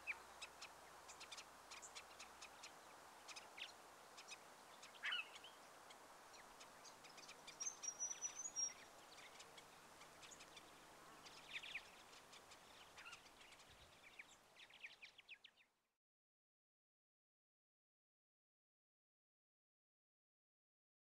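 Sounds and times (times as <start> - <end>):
faint bird chirps: 0.0 - 15.8
faint steady hiss: 0.0 - 16.0.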